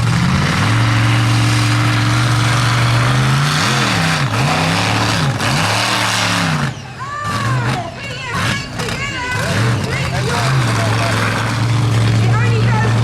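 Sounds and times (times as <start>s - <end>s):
monster truck engine revving: 0.0s - 13.0s.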